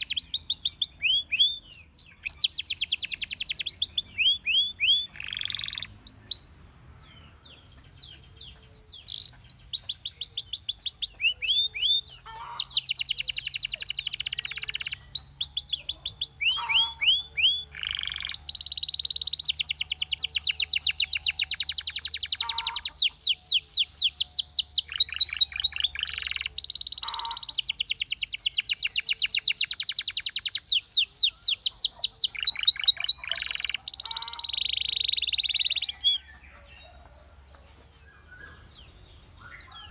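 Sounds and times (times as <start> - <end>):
canary singing rolling trills: 0.0 - 39.9.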